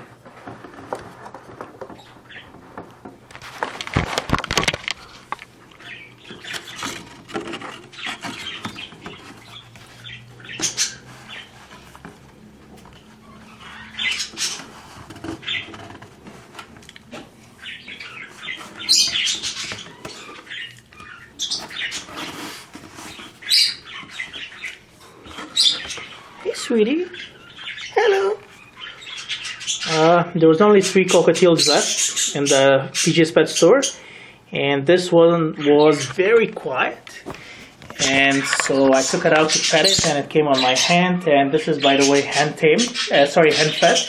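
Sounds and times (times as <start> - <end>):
scratching and rustling in box: 0.0 - 27.9, 37.2 - 40.8
bird high-pitched squeaks: 5.8 - 11.9, 13.1 - 15.8, 17.6 - 30.1.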